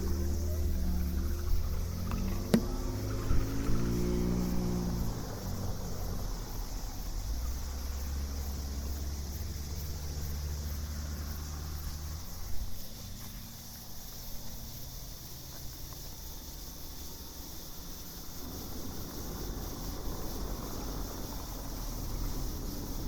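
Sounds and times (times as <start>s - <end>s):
high insect chorus: 0.0s - 23.0s.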